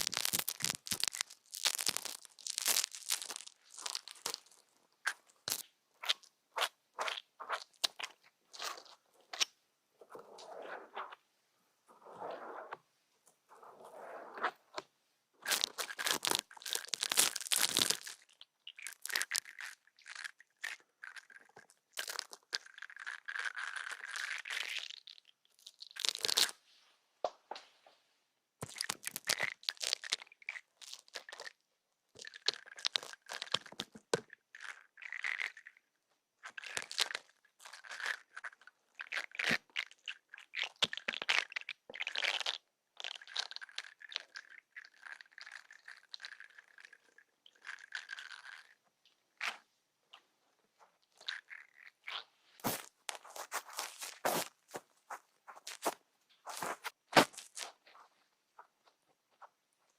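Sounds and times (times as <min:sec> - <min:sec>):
crackly scratching at an ear: 0:06.6 - 0:11.3, 0:11.9 - 0:18.3.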